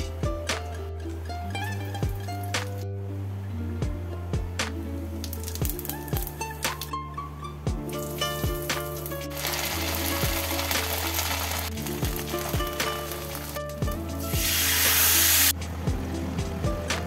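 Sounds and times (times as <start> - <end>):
background music with beat: 0.0 - 17.0
water hissing in hot pan: 8.9 - 13.6, 14.2 - 15.6
paste sizzling in hot oil: 14.4 - 15.5.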